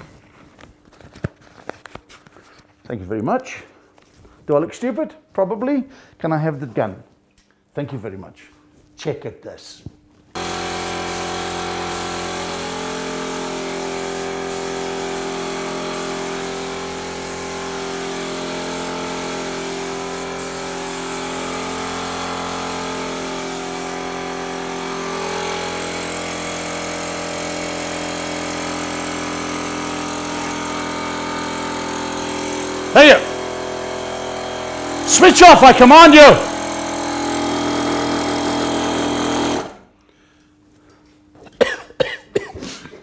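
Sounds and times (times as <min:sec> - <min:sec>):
spray gun air hiss: 0:10.4 - 0:36.7
air compressor motor humming: 0:10.4 - 0:39.8.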